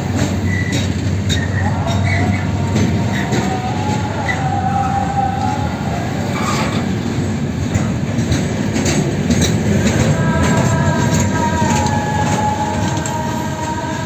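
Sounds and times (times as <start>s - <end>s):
train wheels rumbling on rail: 0.0s - 14.0s
high wheel squeal: 0.4s - 5.6s.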